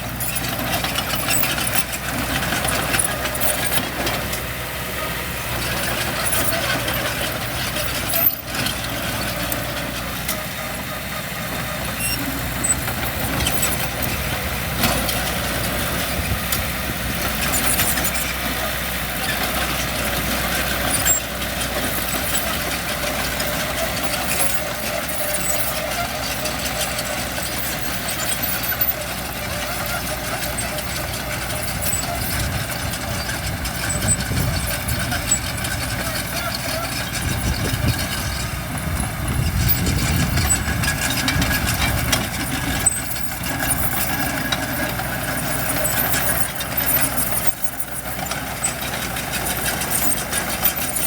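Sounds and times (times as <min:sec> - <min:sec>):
heavy diesel engine running: 0:00.0 - 0:51.0.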